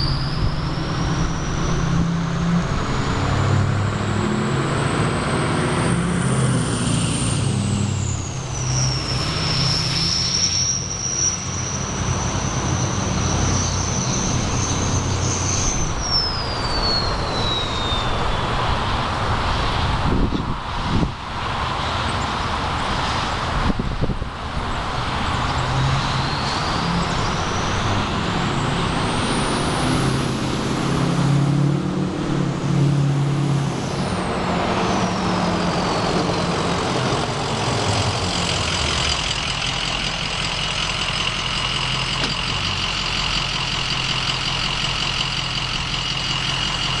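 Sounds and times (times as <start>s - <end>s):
turbo whistling: 0.0s - 3.1s, 8.0s - 18.9s, 26.0s - 28.6s, 34.8s - 47.0s
diesel engine idling: 35.6s - 47.0s.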